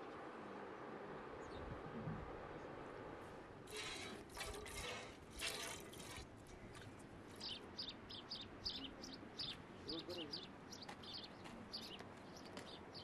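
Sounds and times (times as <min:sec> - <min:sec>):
water splashing: 0:03.7 - 0:07.0
small birds chirping: 0:07.3 - 0:13.0.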